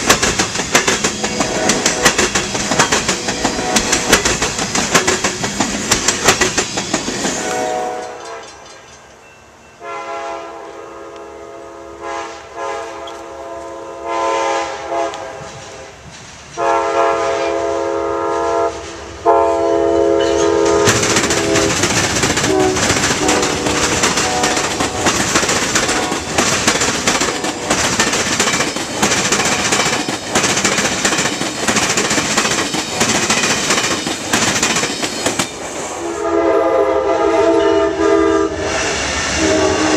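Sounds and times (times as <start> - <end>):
wheels clacking over rail joints: 0.0 - 9.3, 20.2 - 35.8
train rumbling past: 0.0 - 39.9
locomotive air horn blasts: 1.2 - 2.1, 3.2 - 4.2, 7.4 - 8.5, 9.8 - 16.0, 16.6 - 21.8, 22.4 - 25.1, 35.9 - 39.9.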